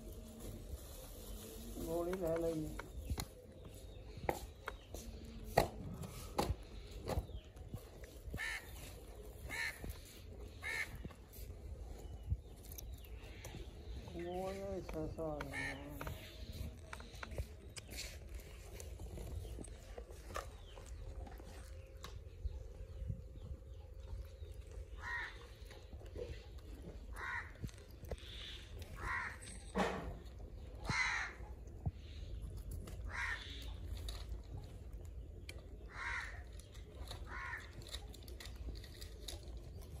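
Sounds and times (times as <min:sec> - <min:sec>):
bird calling: 0:08.1 - 0:11.4, 0:24.9 - 0:26.4.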